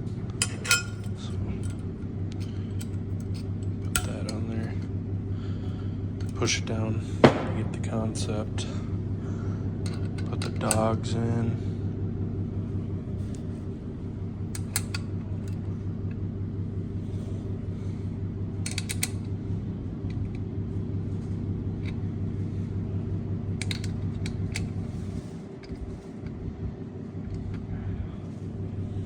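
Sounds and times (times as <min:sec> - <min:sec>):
steady low hum: 0:00.0 - 0:29.0
small metal parts clicking: 0:23.6 - 0:24.8.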